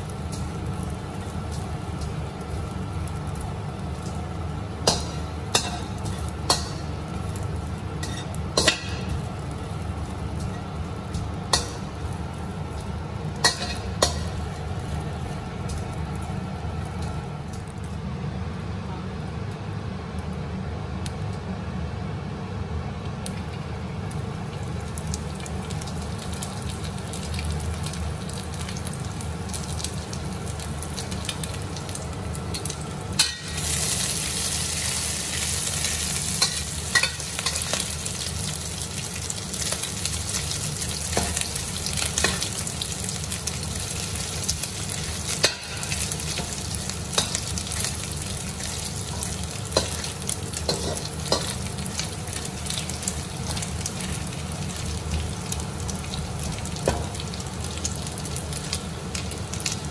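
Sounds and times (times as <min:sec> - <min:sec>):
fish sizzling in hot oil: 0:00.0 - 0:17.9, 0:23.8 - 0:59.9
metal spatula scraping wok: 0:08.0 - 0:09.1.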